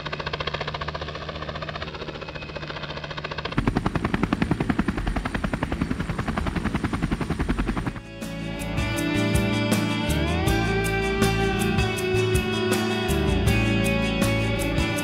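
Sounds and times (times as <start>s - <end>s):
helicopter rotor thumping: 0.0s - 8.4s
music: 8.0s - 15.0s.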